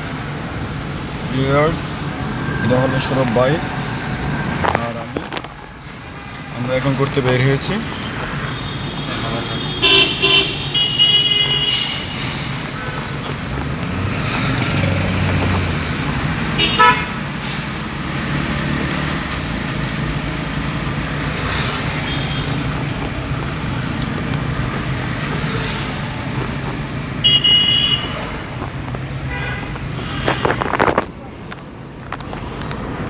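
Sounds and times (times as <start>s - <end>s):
car engine and road noise: 0.0s - 33.0s
car horns tooting: 7.6s - 12.5s, 16.5s - 17.3s, 27.2s - 28.4s, 29.0s - 31.1s.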